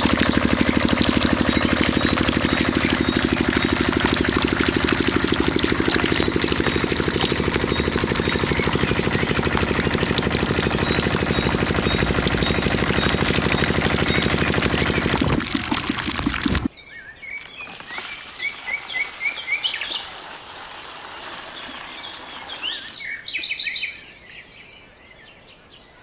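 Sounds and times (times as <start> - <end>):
small diesel engine running: 0.0 - 16.7
water rushing through pump: 0.0 - 16.7.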